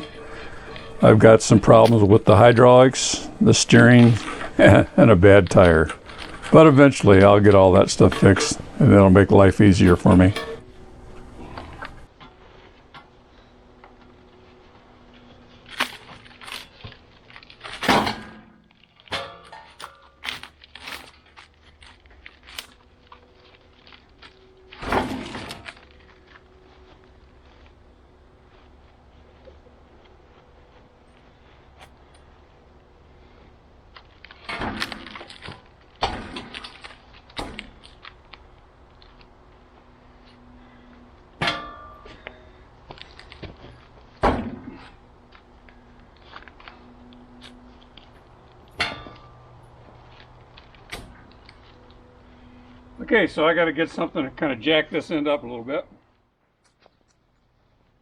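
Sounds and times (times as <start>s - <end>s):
metal clanks ringing: 0.0s - 4.9s, 5.5s - 14.4s, 17.6s - 21.1s, 40.0s - 45.0s, 48.7s - 49.8s
faint low hum: 0.0s - 58.0s.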